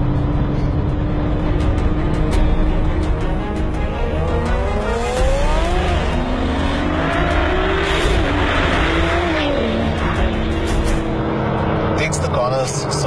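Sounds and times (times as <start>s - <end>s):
background music: 0.0s - 13.0s
car engine accelerating hard: 0.0s - 13.0s.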